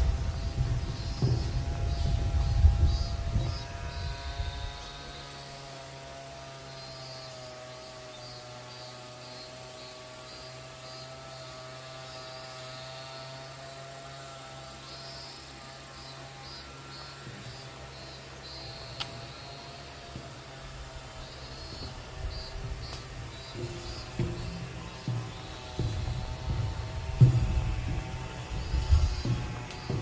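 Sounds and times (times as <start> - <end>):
loud low rumbling: 0.0 - 5.0, 19.8 - 30.0
engine drone: 0.0 - 30.0
faint pulsing chirps: 14.8 - 30.0.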